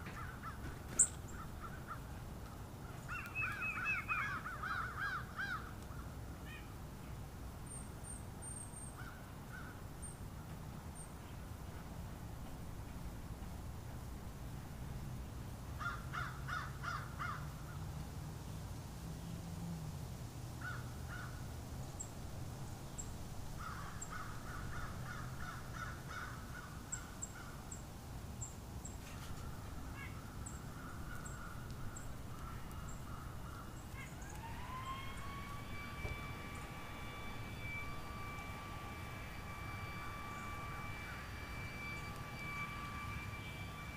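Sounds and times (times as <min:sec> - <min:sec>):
crows cawing: 0:00.0 - 0:02.2, 0:03.0 - 0:06.7, 0:09.0 - 0:09.8, 0:15.8 - 0:17.5, 0:20.6 - 0:21.4, 0:23.6 - 0:27.6, 0:29.4 - 0:42.5
small birds chipping: 0:00.0 - 0:11.9, 0:22.9 - 0:43.9
low steady rumble: 0:00.0 - 0:43.9
steady rising tone: 0:34.2 - 0:43.9.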